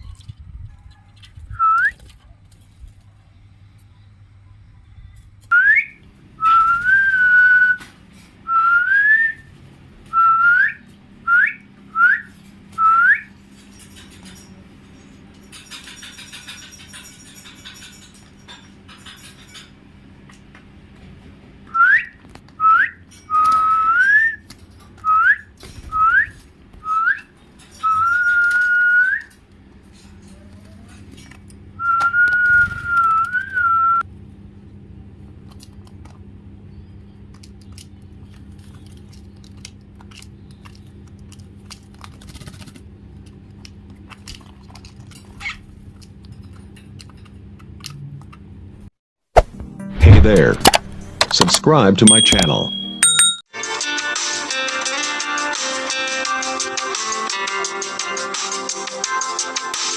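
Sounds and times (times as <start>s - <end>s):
loud whistling: 5.5s - 7.8s, 8.5s - 9.5s, 10.1s - 13.3s, 31.8s - 34.0s.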